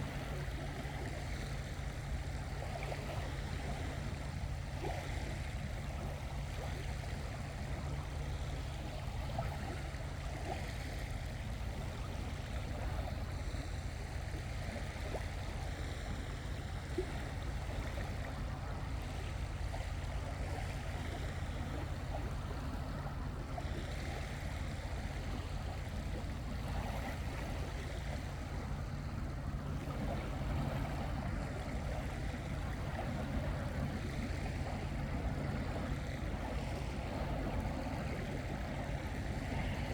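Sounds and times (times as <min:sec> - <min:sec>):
sea rumbling at shore: 0:00.0 - 0:39.9.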